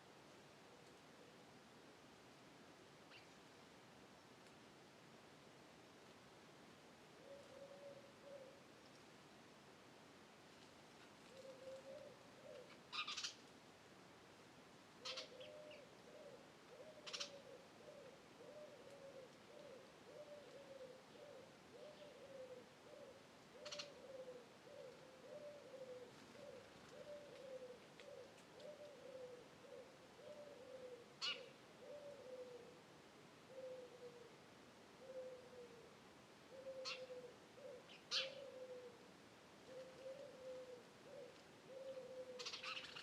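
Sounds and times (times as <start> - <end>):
bird hooting softly: 7.1 - 8.8, 11.2 - 13.5, 15.0 - 43.0
small birds chirping: 11.4 - 13.4, 15.0 - 18.9, 23.6 - 24.2, 31.2 - 31.6, 36.6 - 38.6, 41.1 - 43.0.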